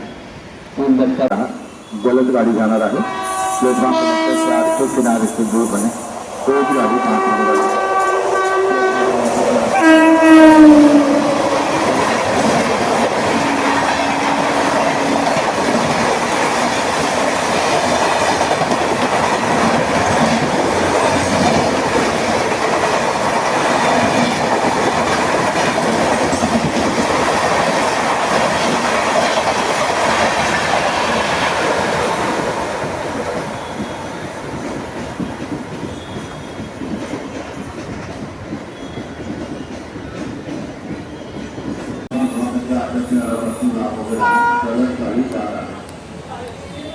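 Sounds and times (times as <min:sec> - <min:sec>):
train horn: 0:02.0 - 0:12.3, 0:13.3 - 0:15.8, 0:44.1 - 0:45.1
train wheels clattering: 0:04.5 - 0:42.1.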